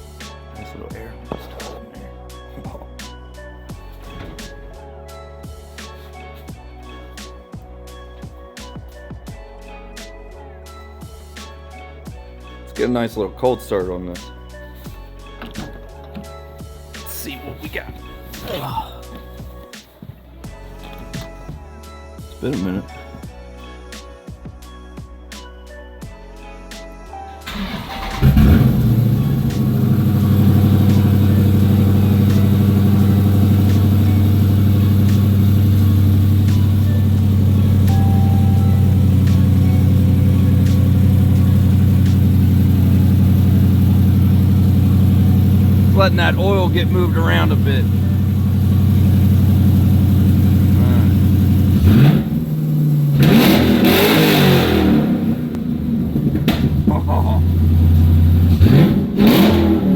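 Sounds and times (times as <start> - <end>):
car engine starting and idling: 27.4 - 59.9.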